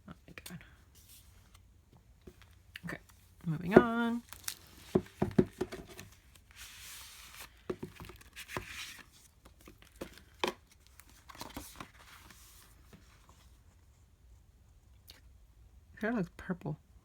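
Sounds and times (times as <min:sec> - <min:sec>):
paper rustling and crinkling: 0:03.8 - 0:13.7.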